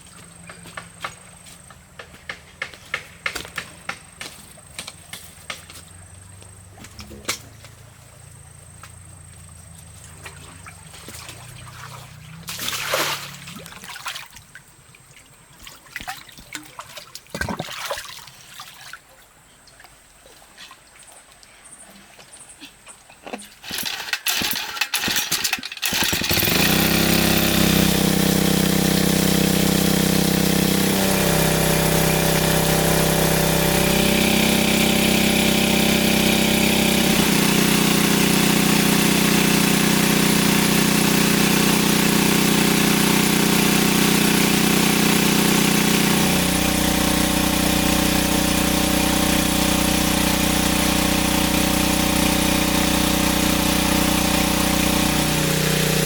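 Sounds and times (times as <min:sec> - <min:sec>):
small engine starting and running: 0:09.8 - 0:14.1, 0:23.6 - 0:56.0.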